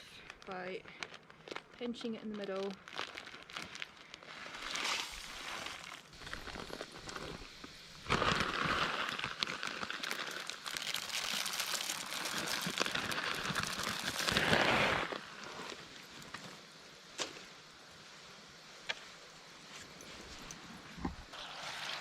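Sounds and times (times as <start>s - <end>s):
bag crinkling: 0.0s - 15.9s
bird seed pouring: 1.4s - 15.9s.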